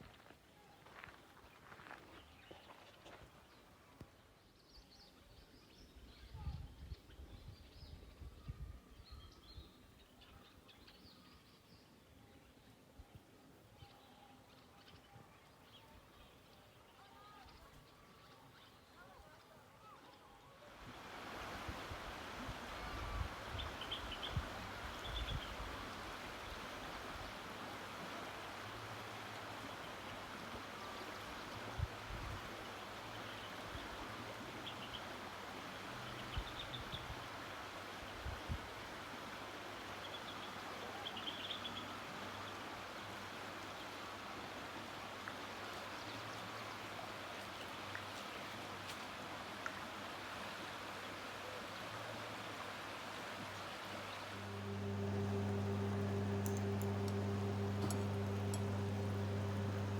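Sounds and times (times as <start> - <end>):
river water flowing: 20.9 - 25.0, 25.8 - 31.7.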